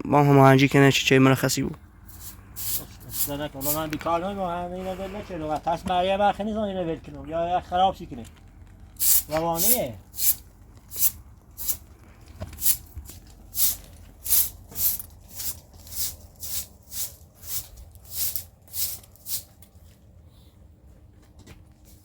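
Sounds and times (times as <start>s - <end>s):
rhythmic scraping strokes: 2.1s - 4.0s.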